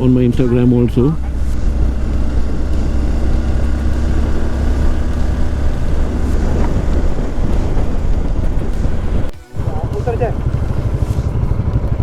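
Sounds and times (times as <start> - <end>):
vehicle engine running: 0.0 - 12.0
wind noise on microphone: 0.0 - 12.0.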